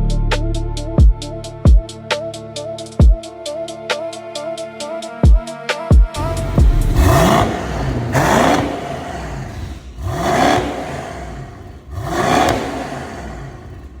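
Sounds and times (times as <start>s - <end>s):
car engine revving: 6.2s - 14.0s.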